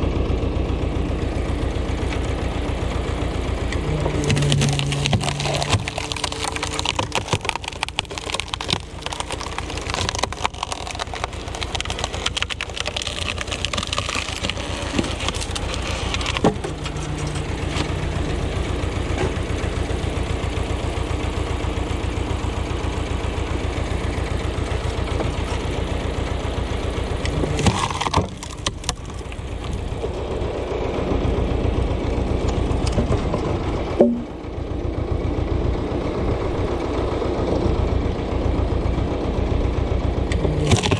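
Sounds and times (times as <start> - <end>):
tractor diesel engine running: 0.0 - 40.9
wood cracking as it splits: 3.8 - 20.0, 27.2 - 30.6, 40.3 - 40.9.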